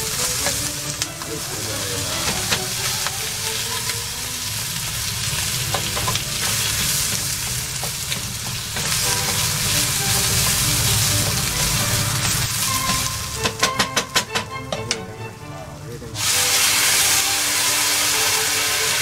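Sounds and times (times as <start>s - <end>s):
food sizzling in a frying pan: 0.0s - 13.8s, 16.2s - 19.0s
wooden spatula scraping pan: 0.3s - 4.1s, 5.1s - 13.6s.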